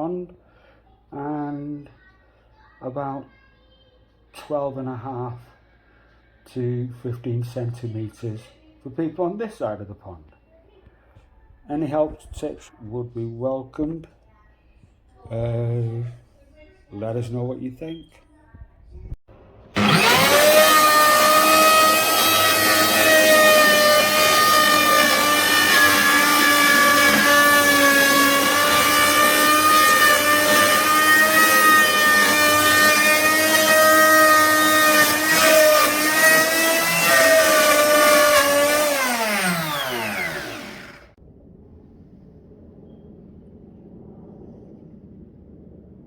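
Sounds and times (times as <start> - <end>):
wood router whining: 19.8 - 41.2.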